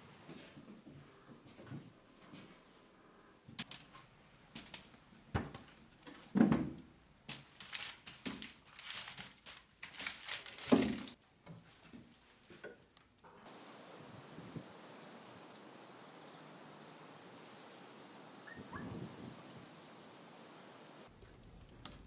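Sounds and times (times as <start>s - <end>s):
crinkling and rustling: 3.6s - 13.4s, 21.0s - 22.0s
steady hiss: 13.4s - 22.0s.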